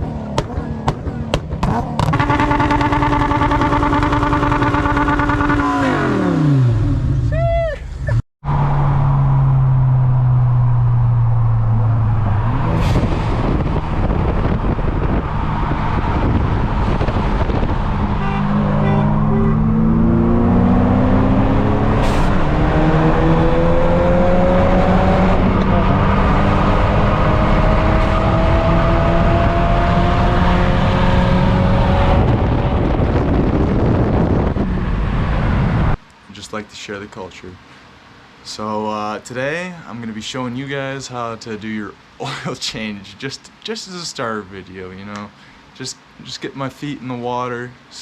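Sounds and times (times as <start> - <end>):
car engine accelerating: 0.0 - 7.3, 8.4 - 36.0.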